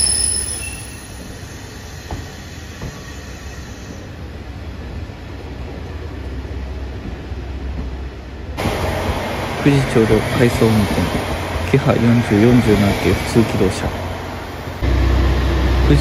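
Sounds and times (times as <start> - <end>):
faint wheel squeal: 0.0 - 4.2
diesel train rumbling past: 0.0 - 16.0.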